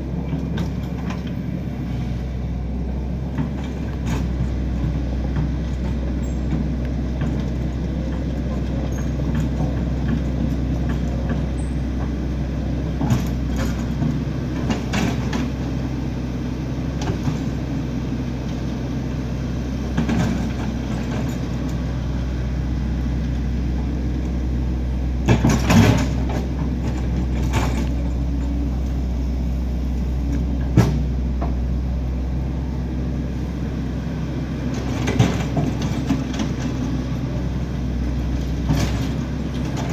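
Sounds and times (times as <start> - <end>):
large engine running: 0.0 - 39.9
knocks and clunks: 25.2 - 28.7, 30.3 - 31.6, 34.6 - 37.1.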